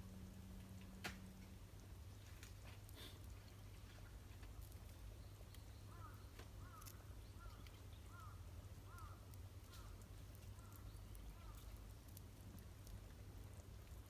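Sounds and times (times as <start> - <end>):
low steady rumble: 0.0 - 14.0
faint animal calls: 5.9 - 10.0
faint clicks: 8.9 - 13.0.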